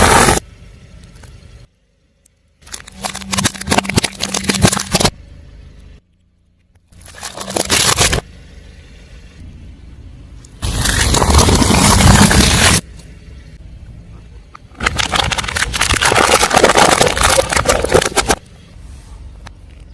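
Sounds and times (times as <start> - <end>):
car engine humming: 0.0 - 19.9
tyre crushing crunchy objects: 2.6 - 5.2, 7.0 - 8.3, 10.6 - 12.8, 14.8 - 18.4.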